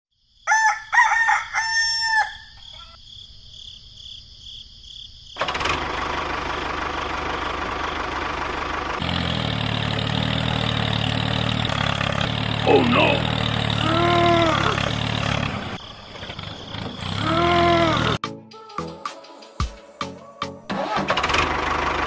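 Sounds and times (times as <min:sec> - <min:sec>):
rooster crowing: 0:00.4 - 0:03.0
small engine humming: 0:05.4 - 0:18.2.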